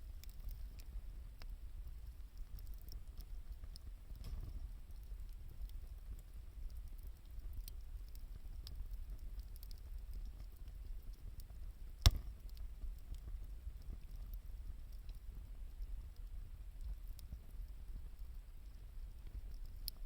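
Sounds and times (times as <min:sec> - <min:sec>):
campfire crackling: 0:00.0 - 0:20.0
sharp loud pop: 0:12.1 - 0:12.3.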